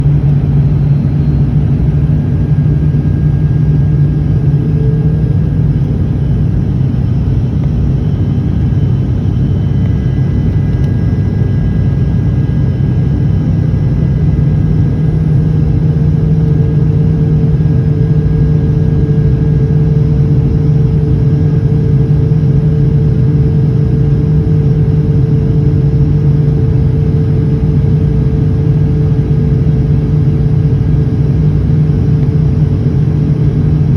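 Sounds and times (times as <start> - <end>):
higher hum: 0.0 - 10.7
airliner engine drone: 0.0 - 33.9.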